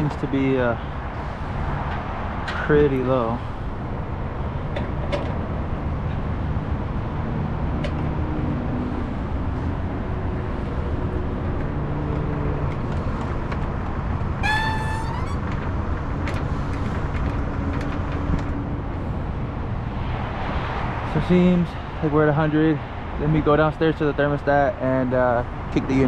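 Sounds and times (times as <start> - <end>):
machinery or traffic rumble: 0.0 - 26.0
rising whistle-like tone: 14.4 - 15.4.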